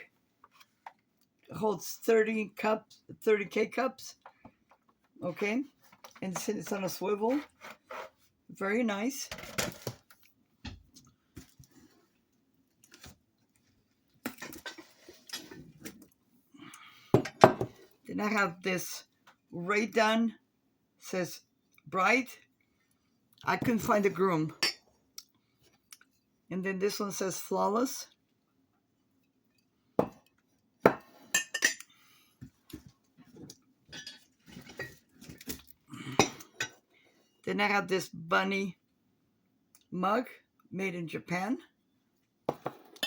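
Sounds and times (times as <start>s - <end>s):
ceramic mugs knocking on hard surface: 17.1s - 17.8s, 42.5s - 42.9s
household items clinking and knocking: 42.5s - 43.0s.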